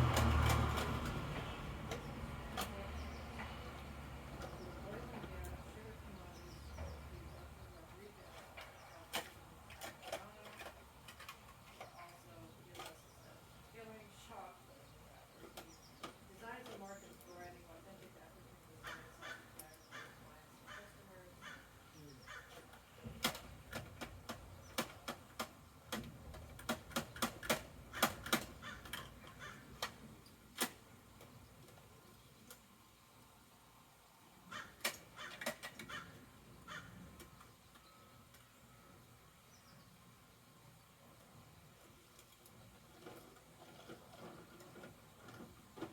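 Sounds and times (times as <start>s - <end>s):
toy truck plastic clicks and knocks: 22.5s - 32.6s, 34.8s - 36.0s.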